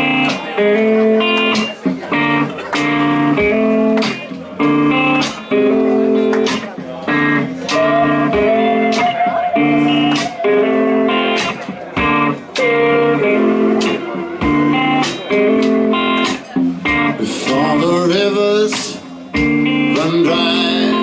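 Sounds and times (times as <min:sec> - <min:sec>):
blues band playing: 0:00.0 - 0:21.0
electric guitar chords: 0:00.0 - 0:21.0
slide guitar line: 0:00.0 - 0:21.0
drum hits: 0:13.8 - 0:17.1.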